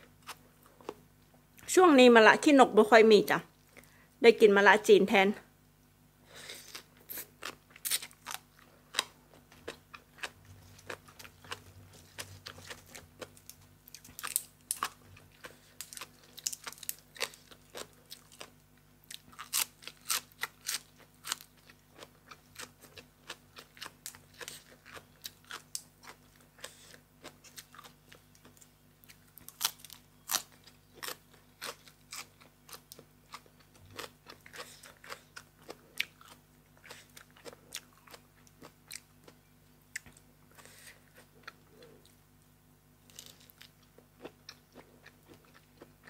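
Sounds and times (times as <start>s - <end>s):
person chewing: 6.3s - 42.2s, 43.0s - 46.0s
crunching crisp food: 6.4s - 42.2s, 43.0s - 46.0s.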